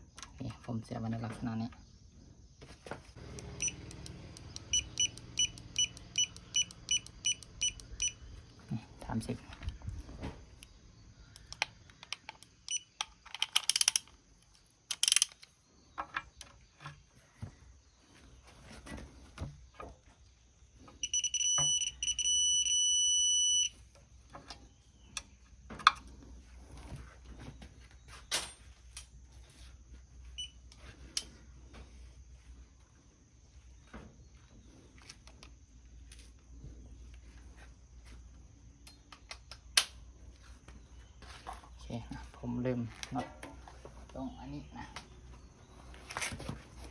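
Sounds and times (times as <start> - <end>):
torque wrench beeping: 3.2 - 8.3, 11.3 - 14.0, 14.9 - 15.4, 21.0 - 23.8
hand tools clicking on metal: 11.4 - 15.5.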